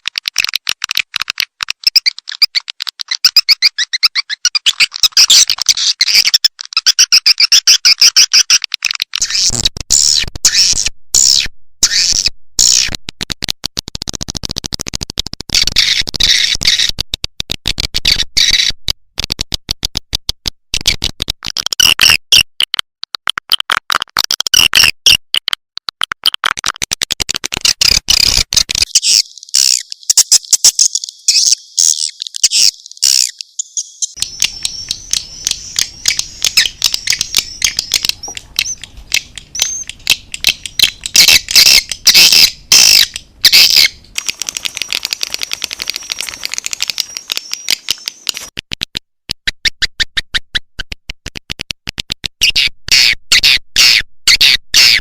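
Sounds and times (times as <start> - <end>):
recorded swiftlet chirping: 1.8 - 8.6, 28.2 - 48.5.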